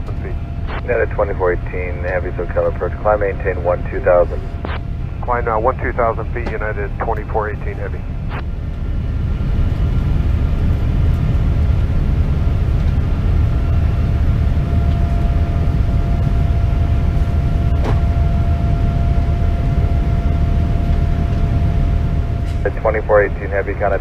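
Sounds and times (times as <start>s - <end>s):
faint steady tone: 0.0s - 8.4s, 14.7s - 24.0s
jet engine cabin noise: 0.0s - 24.0s.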